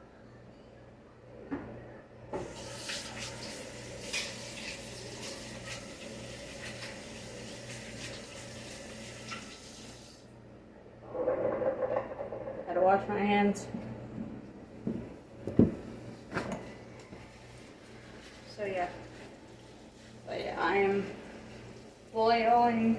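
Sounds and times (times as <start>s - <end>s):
water running into sink: 2.4s - 10.2s.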